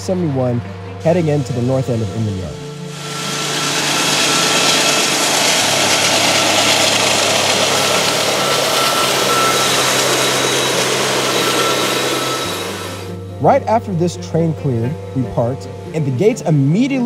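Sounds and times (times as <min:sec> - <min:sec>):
locomotive engine running: 0:01.0 - 0:17.0
thin steady whine: 0:01.1 - 0:17.0
train wheels rumbling and clattering: 0:03.5 - 0:13.1.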